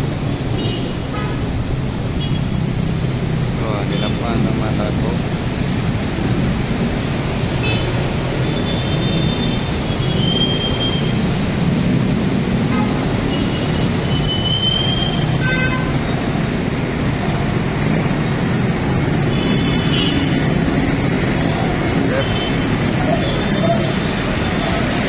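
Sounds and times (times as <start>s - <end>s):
road and traffic noise: 0.0s - 25.0s.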